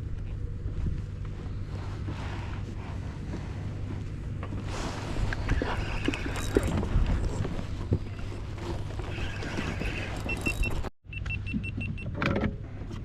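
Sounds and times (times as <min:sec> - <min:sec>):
steady low hum: 0:00.0 - 0:10.9
gear knocking and clicking: 0:05.3 - 0:10.9.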